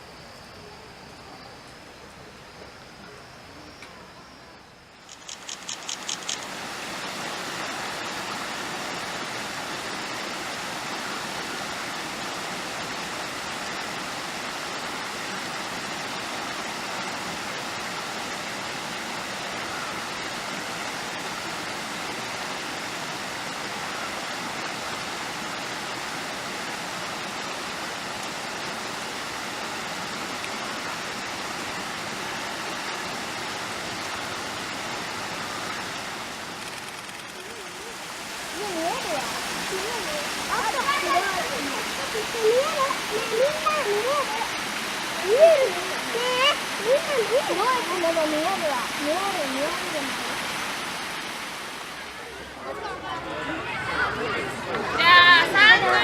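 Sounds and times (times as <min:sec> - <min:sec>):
steady rushing noise: 0:30.2 - 0:52.7.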